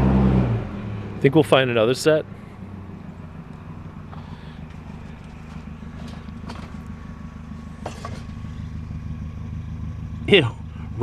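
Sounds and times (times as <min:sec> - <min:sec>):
vehicle engine idling: 0:00.6 - 0:11.0
clicks and rattles of garbage: 0:05.2 - 0:06.9, 0:07.8 - 0:08.4.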